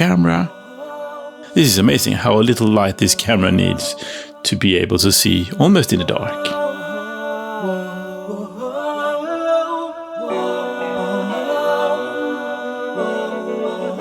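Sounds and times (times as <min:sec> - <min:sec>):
wordless vocal-like tones: 0:00.0 - 0:14.0.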